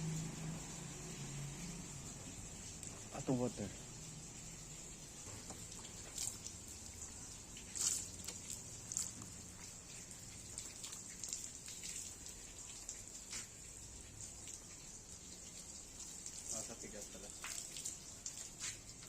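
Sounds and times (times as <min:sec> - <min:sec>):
steady high hiss: 0:00.0 - 0:06.1
water dripping and splashing: 0:00.0 - 0:19.0.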